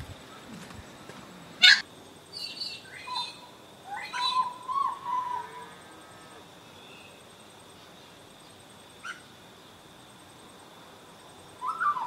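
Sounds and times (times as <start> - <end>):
birds calling and chirping: 0.0 - 5.8, 11.6 - 12.0.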